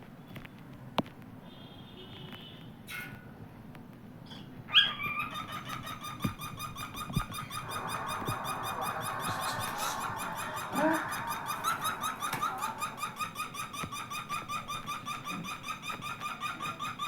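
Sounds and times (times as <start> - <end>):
cockatiel warbling: 4.7 - 17.0.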